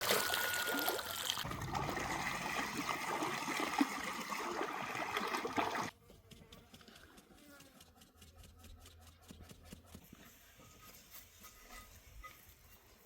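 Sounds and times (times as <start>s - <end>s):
water trickling: 0.0s - 5.9s.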